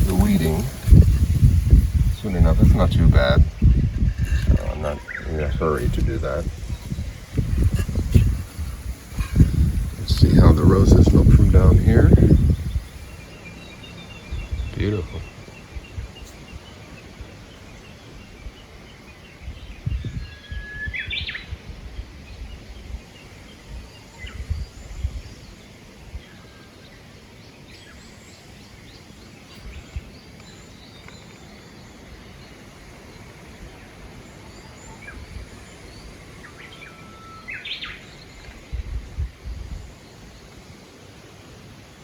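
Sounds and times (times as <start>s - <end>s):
wind buffeting microphone: 0.0s - 26.4s, 29.4s - 31.2s, 31.9s - 36.8s, 37.5s - 40.8s
faint bird chirps: 27.7s - 38.9s
bird singing whistle: 36.6s - 38.0s.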